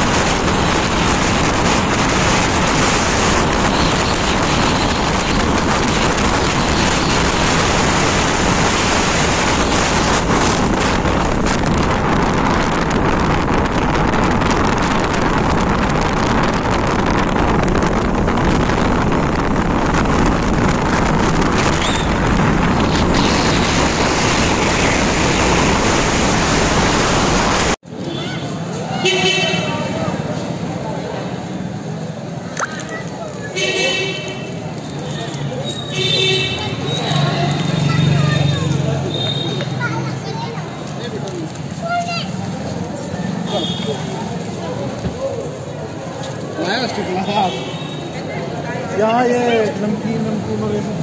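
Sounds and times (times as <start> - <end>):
wind buffeting microphone: 0.0 - 27.8
motorbike road noise: 0.0 - 51.0.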